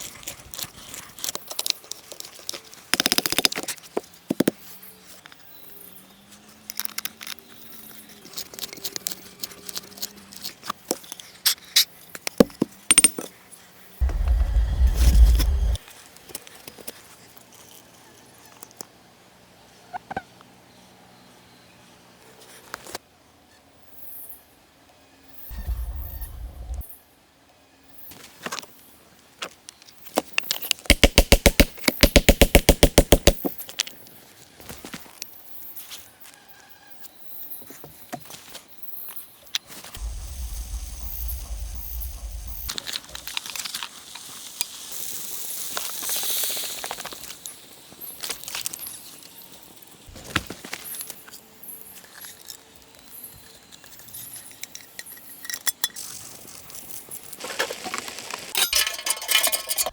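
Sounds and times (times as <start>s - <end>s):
fast run of loud clicks: 30.9s - 33.4s
rustling hiss: 40.0s - 47.6s.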